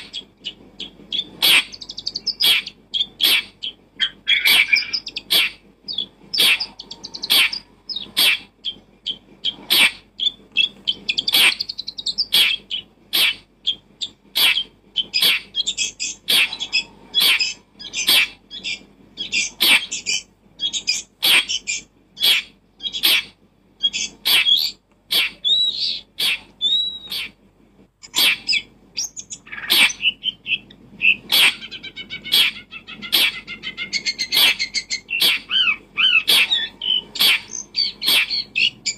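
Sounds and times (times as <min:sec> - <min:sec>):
bird chirping and twittering: 0:00.0 - 0:27.4, 0:28.0 - 0:38.9.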